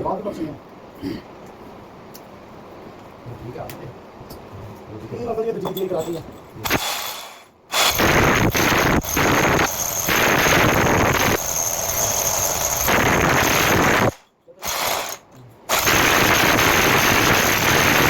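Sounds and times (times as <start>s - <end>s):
hammer drill rattling: 6.7s - 18.0s.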